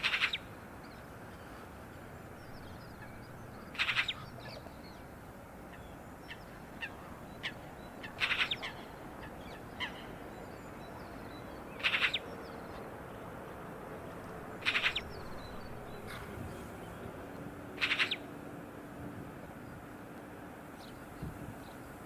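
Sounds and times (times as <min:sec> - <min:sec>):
bird harsh rasping calls: 0:03.0 - 0:04.5, 0:06.8 - 0:08.9, 0:11.8 - 0:12.2, 0:14.6 - 0:16.9, 0:17.8 - 0:18.2.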